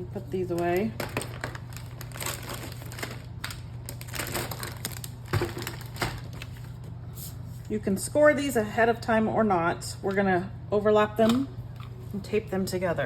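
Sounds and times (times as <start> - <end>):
paper rustling and crinkling: 0.2 - 7.7.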